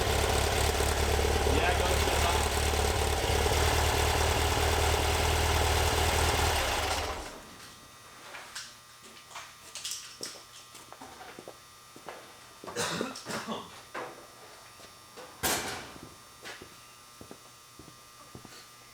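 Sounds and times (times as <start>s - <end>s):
engine idling: 0.0s - 7.5s.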